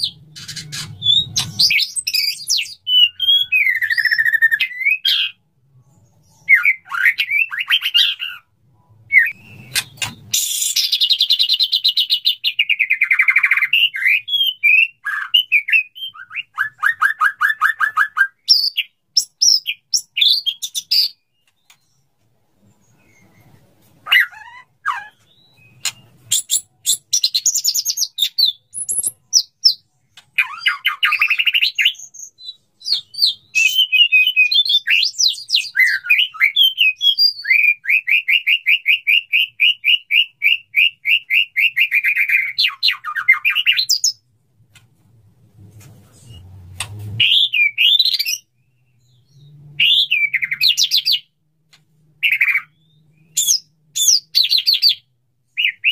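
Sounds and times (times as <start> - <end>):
bird singing whistled phrases: 0.0 - 5.4, 9.1 - 21.2, 30.4 - 44.2, 47.2 - 51.3, 52.2 - 55.0, 55.6 - 55.9.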